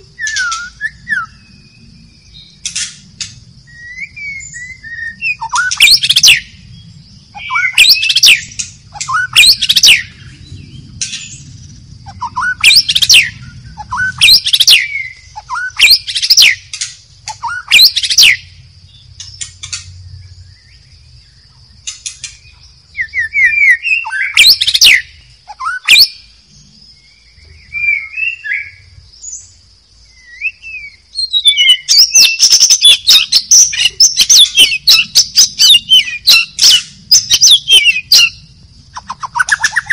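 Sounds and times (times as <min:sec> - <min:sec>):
steady high-pitched hum: 0:00.0 - 0:31.4
songbird singing sharp phrases: 0:00.0 - 0:39.9.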